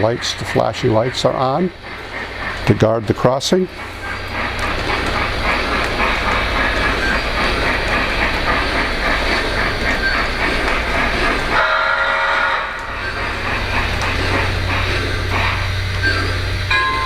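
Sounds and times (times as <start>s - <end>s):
model train rumbling on track: 0.0s - 17.0s
train whistle: 11.6s - 13.0s.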